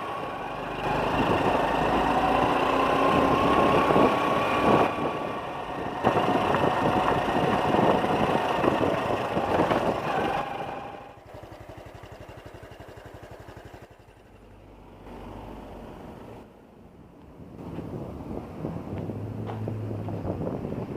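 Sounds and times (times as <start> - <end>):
small motorcycle engine: 0.0 - 16.5
wind rushing on microphone: 3.0 - 11.1, 17.3 - 20.9.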